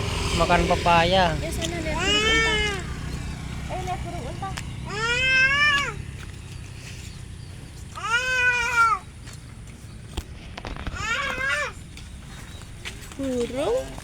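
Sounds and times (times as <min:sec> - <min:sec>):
cat meowing: 0:02.0 - 0:02.9, 0:04.9 - 0:06.0, 0:08.0 - 0:09.0.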